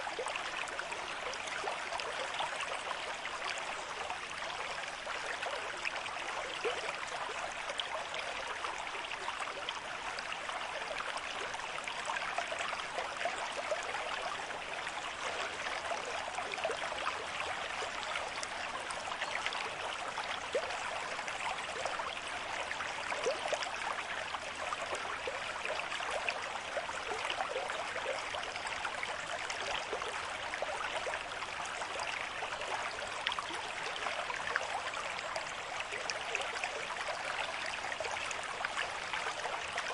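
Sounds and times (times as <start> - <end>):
stream running over stones: 0.0 - 39.9.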